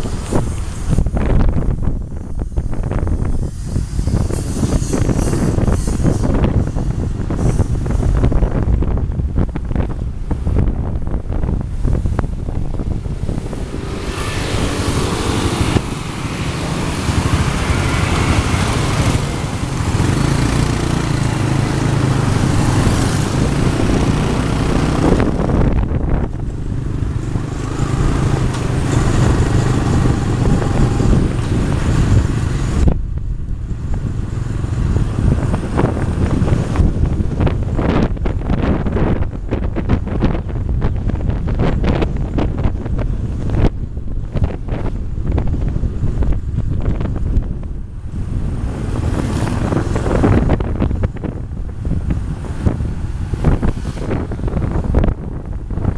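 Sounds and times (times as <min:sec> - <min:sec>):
traffic rushing noise: 0:00.0 - 0:55.9
wind buffeting microphone: 0:00.0 - 0:55.9
motorbike engine: 0:12.5 - 0:39.3.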